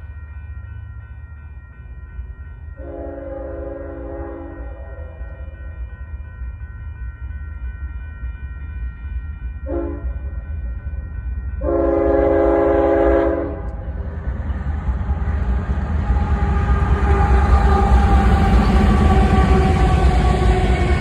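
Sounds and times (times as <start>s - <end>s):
train rumble: 0.0s - 21.0s
locomotive air horn blasts: 2.8s - 5.2s, 9.7s - 10.1s, 11.6s - 13.7s.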